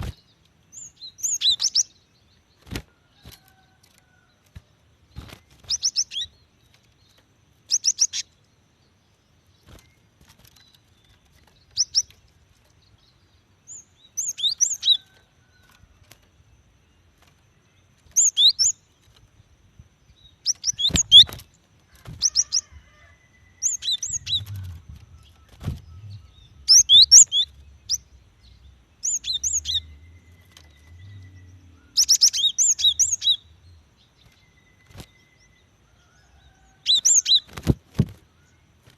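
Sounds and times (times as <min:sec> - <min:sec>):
bird chirping: 0:00.0 - 0:38.9
faint low rumble: 0:23.4 - 0:32.0.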